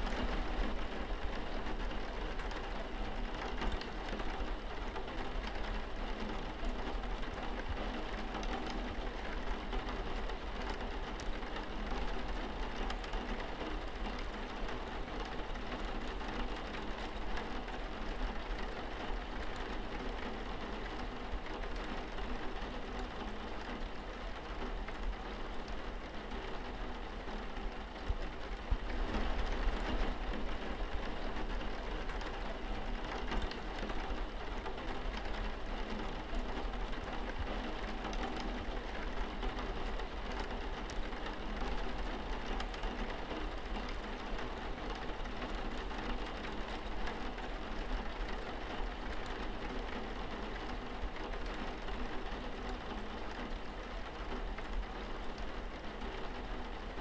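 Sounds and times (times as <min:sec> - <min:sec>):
rain on window glass: 0:00.0 - 0:57.0.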